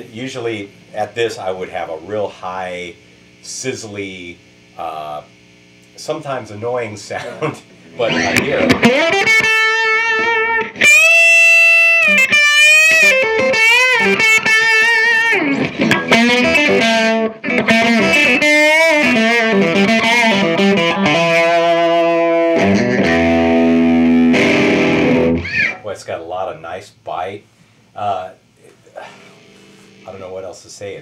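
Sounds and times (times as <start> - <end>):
overdriven electric guitar: 7.8 - 25.8, 29.0 - 30.4.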